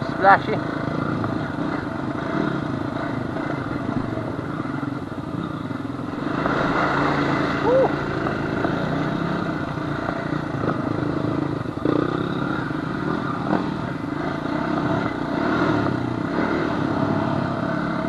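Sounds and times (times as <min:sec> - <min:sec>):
quad engine running: 0:00.0 - 0:18.0.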